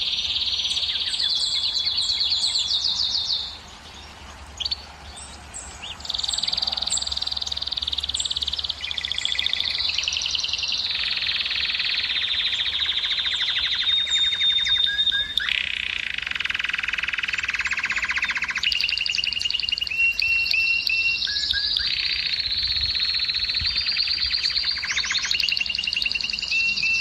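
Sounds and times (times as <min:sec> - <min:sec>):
canary singing trills: 0:00.0 - 0:27.0
canary chirping: 0:05.8 - 0:27.0
held bird whistle: 0:06.1 - 0:27.0.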